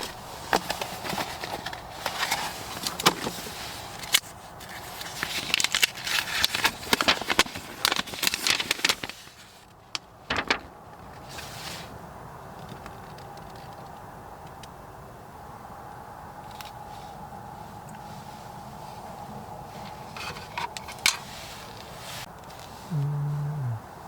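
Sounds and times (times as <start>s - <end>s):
crinkly rustling: 0.0s - 11.8s.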